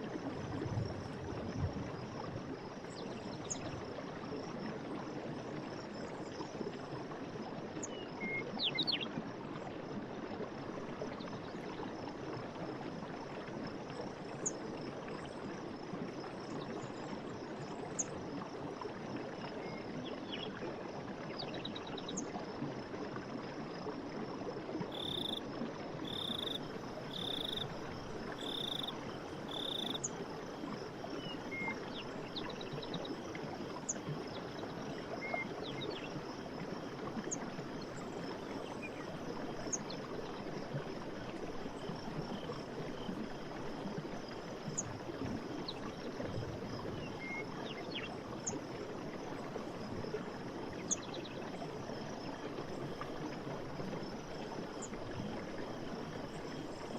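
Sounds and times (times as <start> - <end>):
forest stream running: 0.0 - 56.9.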